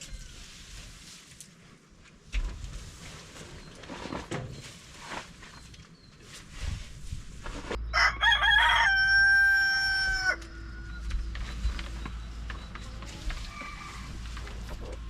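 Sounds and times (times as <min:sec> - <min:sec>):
rooster crowing: 0:07.9 - 0:11.0.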